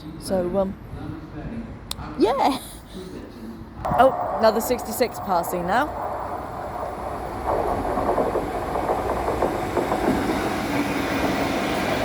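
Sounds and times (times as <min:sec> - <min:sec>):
diesel locomotive passing: 0:03.8 - 0:12.0
wagons clattering over rail joints: 0:03.9 - 0:12.0.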